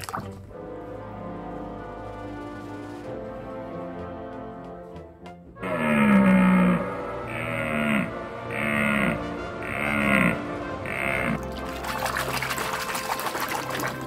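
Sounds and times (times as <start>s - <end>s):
background music: 0.0s - 14.0s
low animal call: 5.6s - 11.4s.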